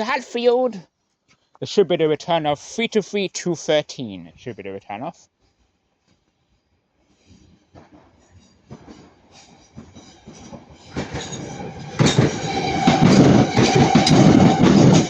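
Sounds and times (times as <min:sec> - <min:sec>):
train wheels clicking over rail joints: 0:07.3 - 0:15.0.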